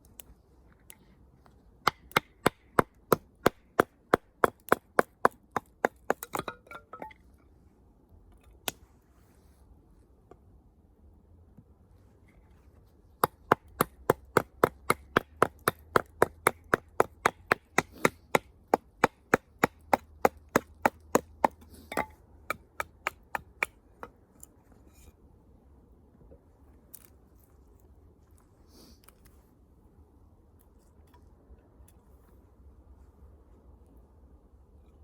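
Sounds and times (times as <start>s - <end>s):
wood chopping strikes: 1.9s - 7.0s, 13.2s - 24.1s.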